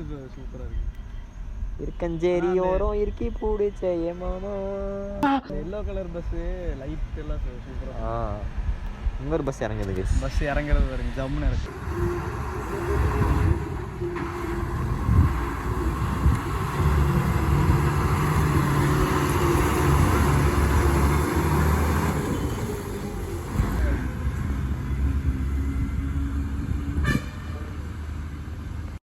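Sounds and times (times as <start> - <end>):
bus horn toot: 5.2 - 5.6, 11.7 - 23.2, 26.8 - 27.9
bus engine running: 11.6 - 29.0.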